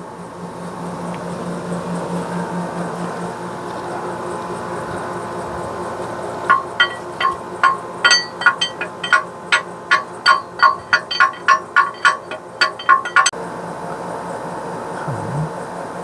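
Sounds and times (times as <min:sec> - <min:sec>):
low shop hum: 0:00.0 - 0:16.0
hammer tapping on steel: 0:06.5 - 0:13.3.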